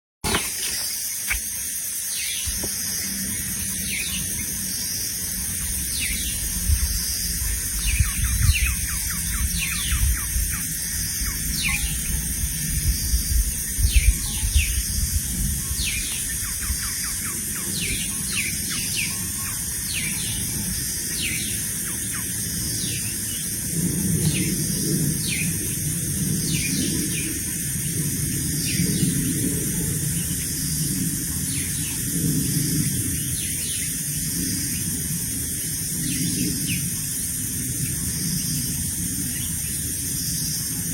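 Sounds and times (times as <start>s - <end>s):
small birds calling: 0.3s - 23.5s.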